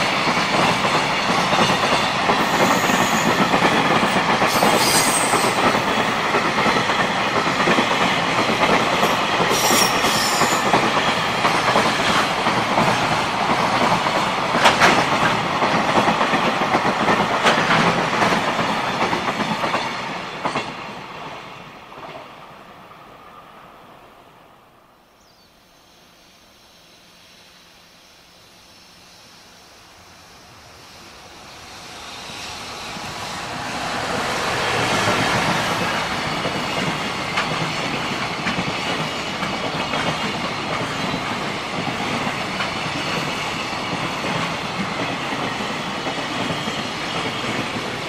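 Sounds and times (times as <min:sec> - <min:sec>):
train wheels rumbling on rails: 0:00.0 - 0:23.6, 0:29.4 - 0:48.0
high wheel squeals: 0:02.4 - 0:03.4, 0:04.5 - 0:05.6, 0:09.5 - 0:10.7.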